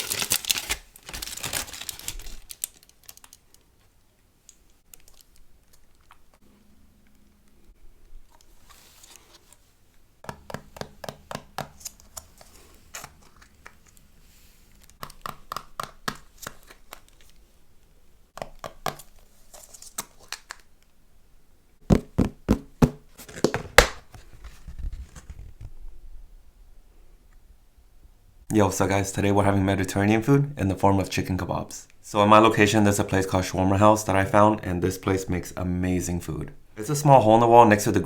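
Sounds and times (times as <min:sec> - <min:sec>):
packaging crinkling and tearing: 0:00.0 - 0:03.8.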